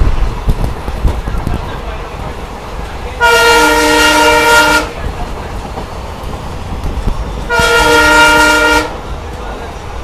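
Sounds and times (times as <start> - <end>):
train rumbling and clattering on rails: 0.0 - 10.0
locomotive air horn blast: 3.2 - 5.0, 7.5 - 9.0.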